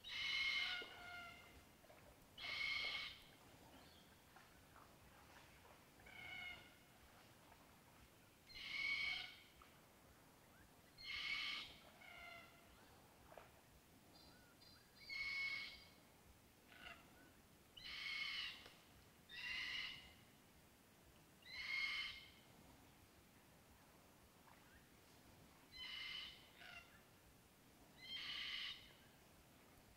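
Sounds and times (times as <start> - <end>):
bird calling: 0.0 - 1.6, 2.4 - 4.0, 25.7 - 27.0.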